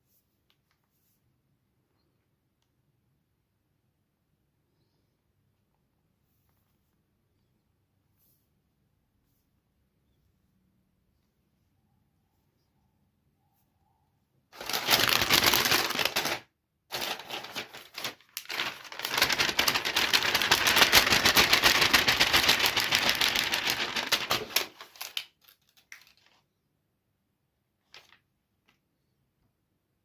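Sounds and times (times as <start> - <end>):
rapid dense clicking and crackling: 17.0 - 24.7.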